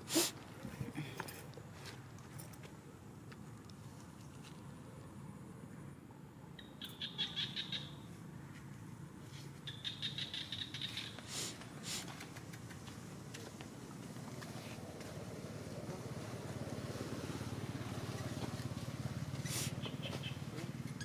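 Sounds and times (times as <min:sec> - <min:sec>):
bird chirping trill: 0:06.6 - 0:08.1, 0:09.6 - 0:11.2.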